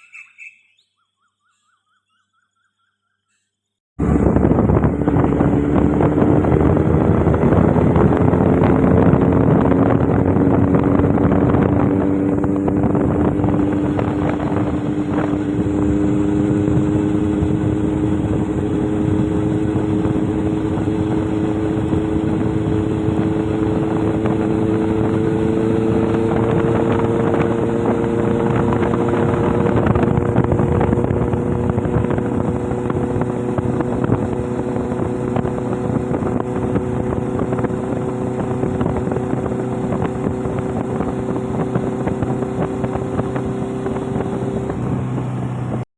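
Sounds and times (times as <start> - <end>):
motorboat engine running: 4.0 - 45.8.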